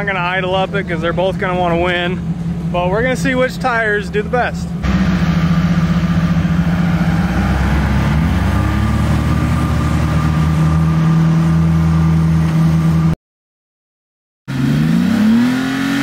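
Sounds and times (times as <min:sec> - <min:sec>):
off-road engines under load: 0:00.0 - 0:13.2
engine revving up: 0:04.8 - 0:13.1, 0:14.5 - 0:16.0.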